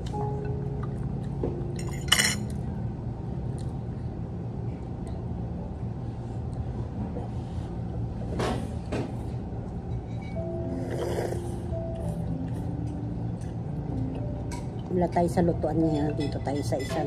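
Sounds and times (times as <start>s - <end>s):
steady low hum: 0.0s - 17.0s
dishes and cutlery clinking: 1.7s - 2.6s, 14.4s - 17.0s.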